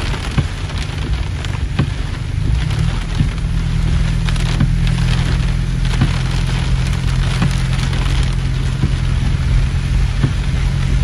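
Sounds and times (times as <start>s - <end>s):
car low hum: 0.0s - 11.0s
heavy rain on car: 0.0s - 11.0s
soft tap: 10.2s - 10.4s.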